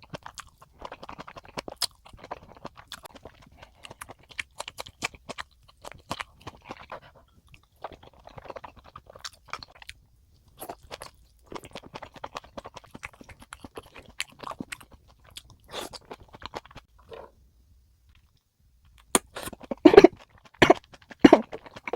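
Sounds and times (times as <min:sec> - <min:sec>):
chewing and crunching food: 0:00.0 - 0:17.3, 0:18.1 - 0:21.9.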